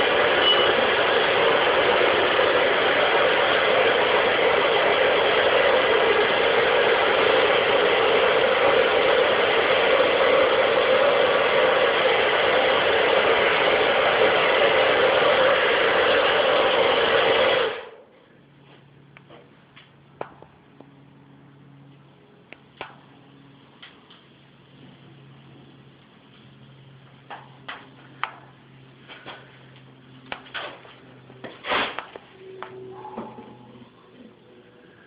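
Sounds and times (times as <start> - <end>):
propane burner roaring: 0.0 - 35.0.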